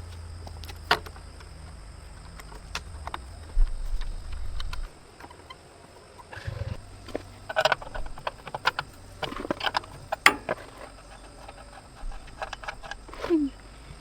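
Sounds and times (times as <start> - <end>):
metal tools clinking and knocking: 7.1 - 13.0.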